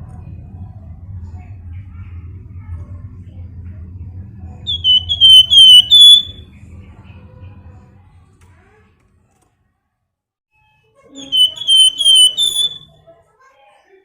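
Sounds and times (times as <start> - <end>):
songbird whistling: 4.7 - 6.4, 11.2 - 12.9.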